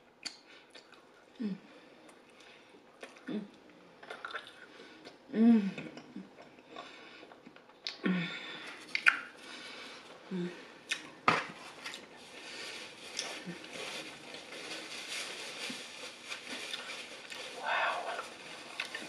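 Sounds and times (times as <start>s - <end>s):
person chewing: 3.0s - 5.2s, 8.8s - 9.3s
woman humming mmm: 3.2s - 3.6s.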